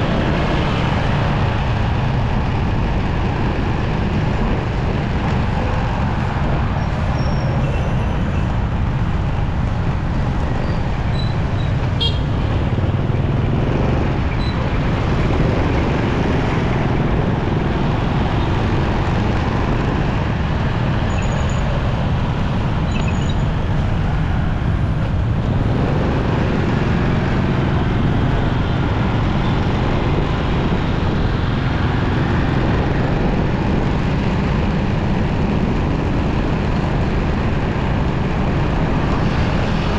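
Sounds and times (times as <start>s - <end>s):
motorcycle engine and road noise: 0.0s - 39.9s
vehicle horn toots: 12.0s - 12.6s.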